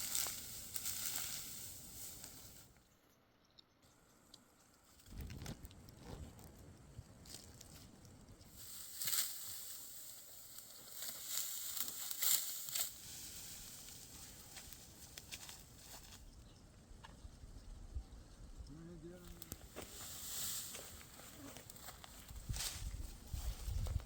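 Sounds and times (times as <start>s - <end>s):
dry wheat stalks rustling: 0.0s - 2.8s, 4.8s - 16.3s, 19.1s - 24.0s.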